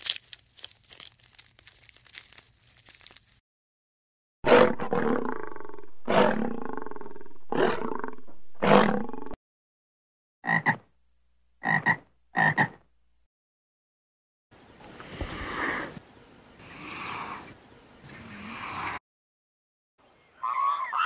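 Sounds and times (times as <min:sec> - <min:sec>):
lion roaring: 0:04.5 - 0:09.4
frog croaking: 0:10.4 - 0:10.8, 0:11.6 - 0:12.8.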